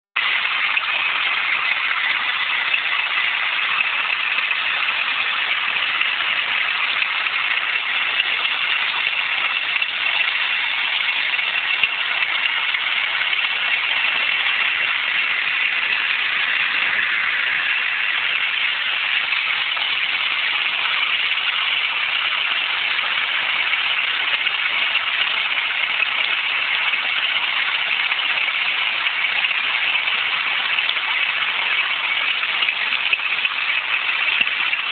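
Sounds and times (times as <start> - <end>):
steady grinding noise: 0.2 - 27.5.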